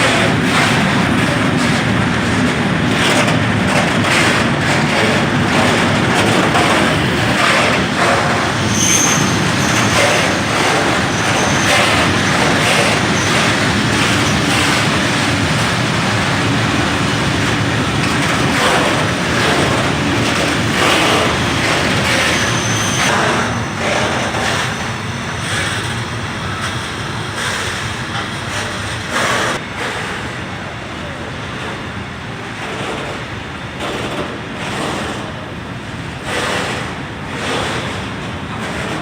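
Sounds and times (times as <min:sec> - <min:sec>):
train rumbling on rails: 0:00.0 - 0:39.0
train wheel squeals: 0:04.9 - 0:16.1, 0:18.0 - 0:30.2.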